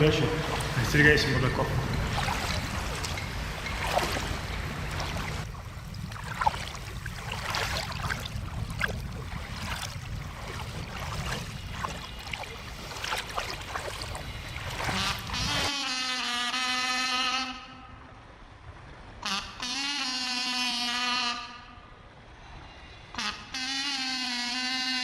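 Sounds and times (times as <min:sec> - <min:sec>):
water splashing and lapping: 0:00.0 - 0:15.8.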